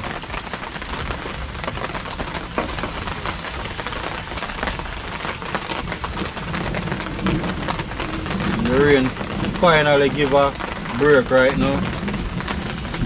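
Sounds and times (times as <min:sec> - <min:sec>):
rain falling: 0:00.0 - 0:13.0
raindrops hitting surfaces: 0:00.0 - 0:13.0.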